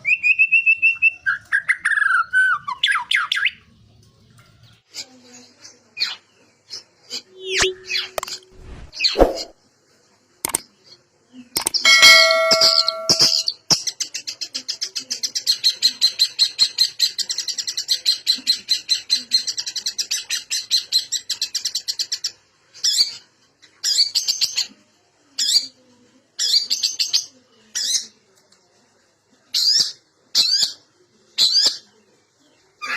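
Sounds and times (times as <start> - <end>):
shrike singing: 11.9 - 13.5.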